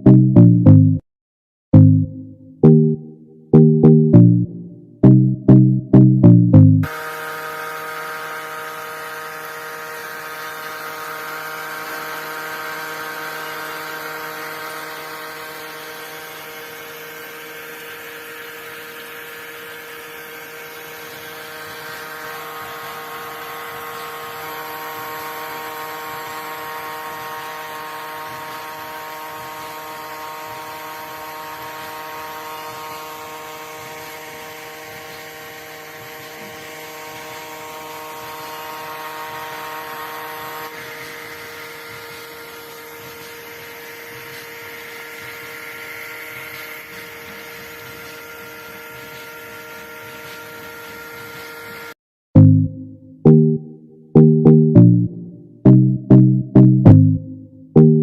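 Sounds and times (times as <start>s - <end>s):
small water pump motor whining: 6.6s - 52.5s.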